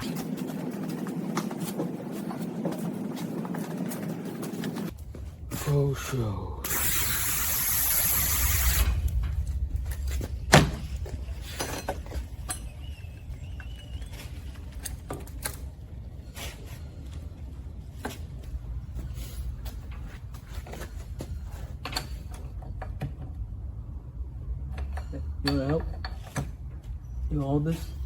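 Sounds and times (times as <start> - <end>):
aerosol spray hissing: 6.7 - 9.0.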